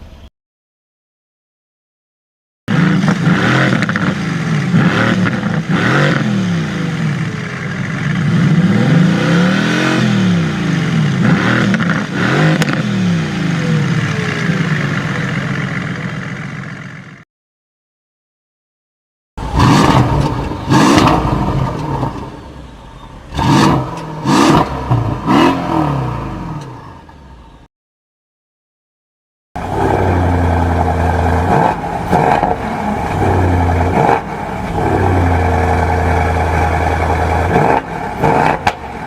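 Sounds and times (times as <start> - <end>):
car engine revving: 2.7 - 16.6, 19.4 - 27.2, 29.6 - 39.0.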